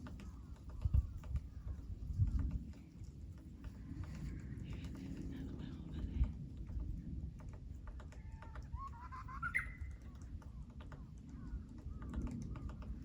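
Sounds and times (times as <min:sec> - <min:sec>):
woodpecker tapping on wood: 0:06.6 - 0:13.0.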